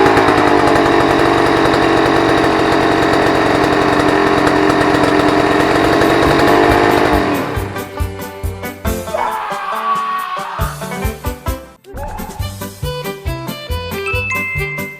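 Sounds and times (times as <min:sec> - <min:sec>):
two-stroke engine running loudly: 0:00.0 - 0:08.5.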